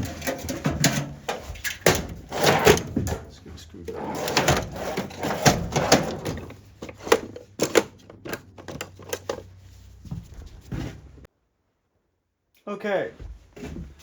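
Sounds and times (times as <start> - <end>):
hand tools and metal parts clinking: 0.0 - 10.0.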